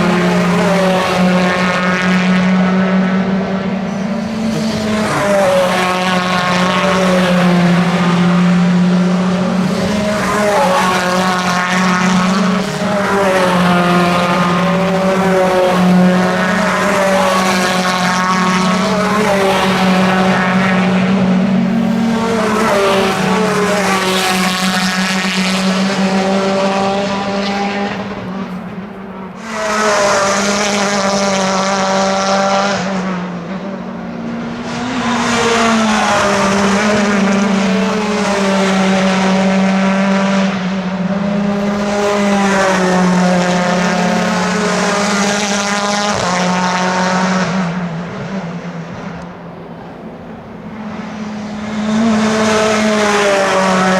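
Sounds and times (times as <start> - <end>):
low drone: 0.0 - 32.5
race car engines accelerating: 0.0 - 53.9.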